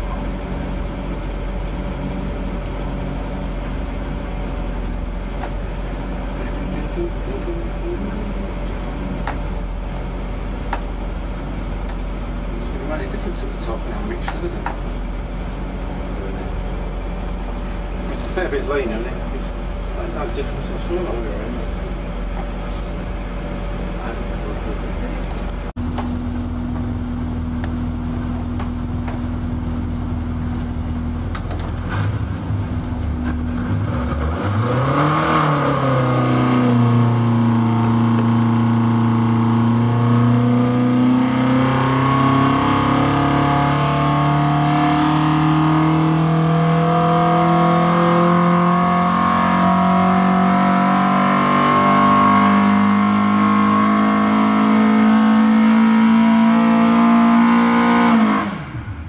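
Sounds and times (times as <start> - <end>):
engine revving on dyno: 31.8 - 59.0.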